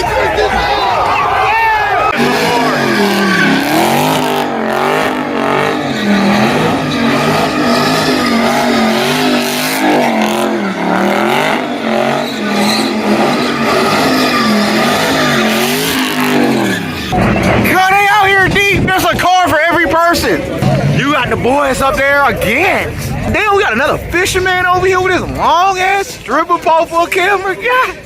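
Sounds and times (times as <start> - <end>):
tyres squealing: 0.0 - 18.4
car engine revving hard: 2.2 - 17.7.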